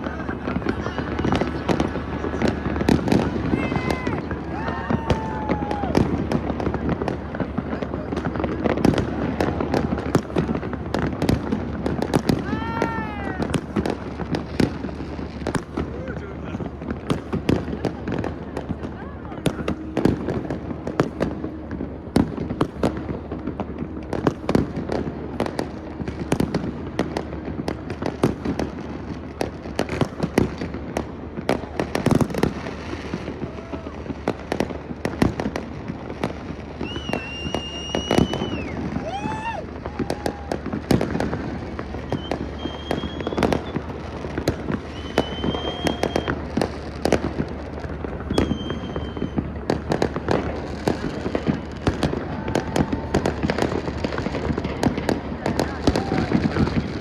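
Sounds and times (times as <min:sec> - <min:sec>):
fireworks bangs and crackles: 0:00.0 - 0:57.0
high firework whistles: 0:36.6 - 0:47.4, 0:48.0 - 0:54.8.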